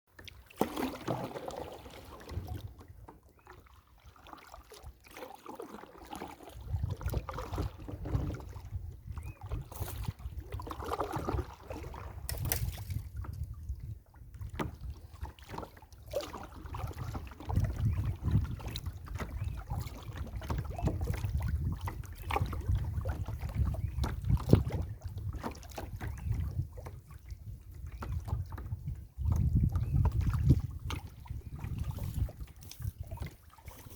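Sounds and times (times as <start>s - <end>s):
paddle splashing water: 0.1s - 33.9s
wind rumbling on microphone: 6.6s - 15.6s, 16.5s - 33.9s.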